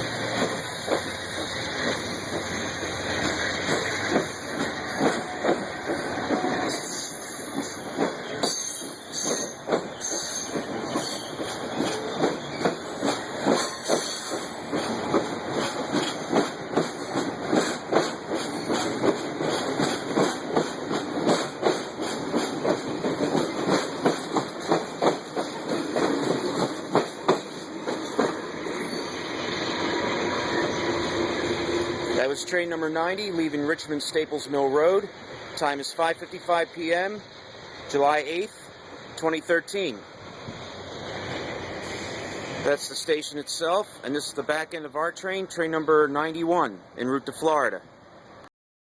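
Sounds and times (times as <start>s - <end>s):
train wheels clacking over rail joints: 0.0s - 28.8s
wheel-on-rail hiss: 40.4s - 42.7s.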